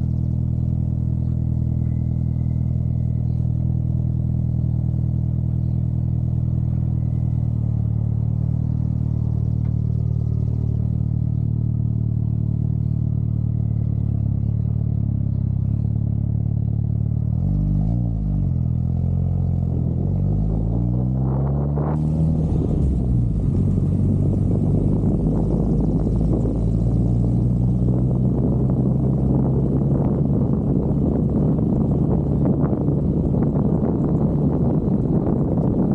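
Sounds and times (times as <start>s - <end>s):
car engine running: 0.0s - 35.9s
wind noise: 19.6s - 35.9s.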